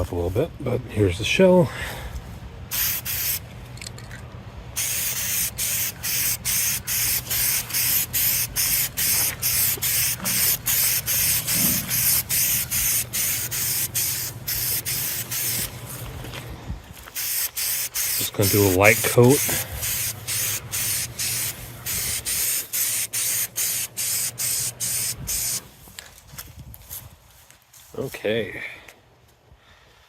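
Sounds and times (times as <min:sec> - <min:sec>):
spray can hissing in bursts: 0:02.7 - 0:03.4, 0:04.8 - 0:16.0, 0:17.1 - 0:25.6.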